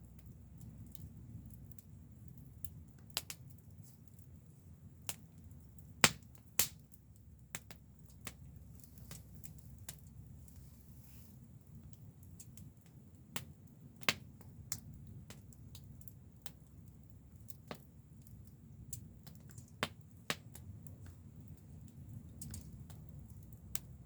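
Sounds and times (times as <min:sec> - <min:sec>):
wood fire crackling and popping: 0:00.0 - 0:24.0
low steady rumble: 0:03.6 - 0:19.3.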